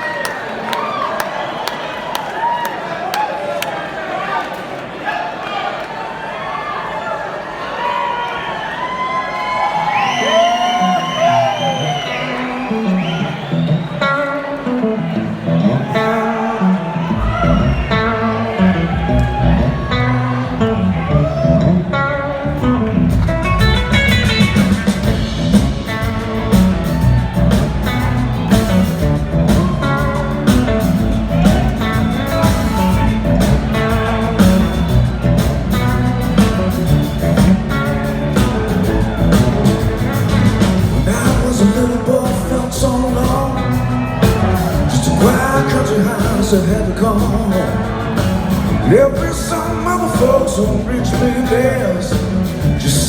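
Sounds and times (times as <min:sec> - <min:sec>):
bass: 0:09.6 - 0:53.0
guitar lines: 0:09.8 - 0:53.0
drums and cymbals: 0:17.2 - 0:18.2, 0:22.6 - 0:53.0.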